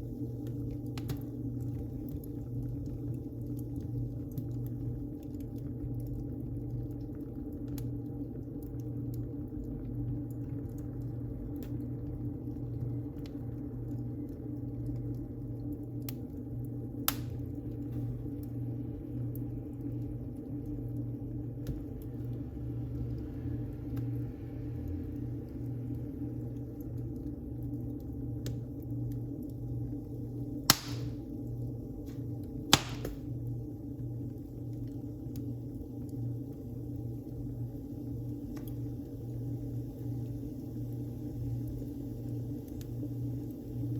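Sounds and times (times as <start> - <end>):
fire crackles and pops: 0.0 - 24.2, 24.8 - 43.9
low rumble of flames: 0.0 - 43.9
sharp pops from burning wood: 0.9 - 1.4, 17.0 - 18.1, 30.6 - 31.4, 32.0 - 33.4.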